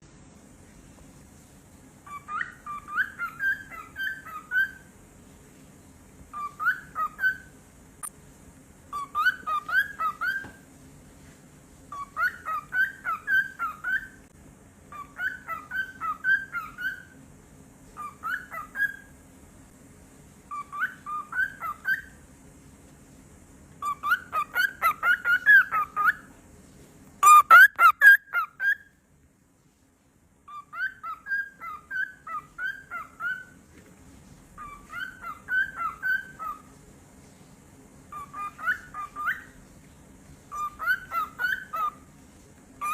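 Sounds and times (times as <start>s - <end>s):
cockatiel chirping: 2.0s - 4.9s, 6.3s - 7.5s, 8.9s - 10.6s, 11.9s - 14.2s, 14.9s - 17.2s, 18.0s - 19.1s, 20.5s - 22.2s, 23.8s - 26.3s, 27.2s - 28.9s, 30.5s - 33.6s, 34.6s - 36.7s, 38.1s - 39.6s, 40.5s - 42.1s.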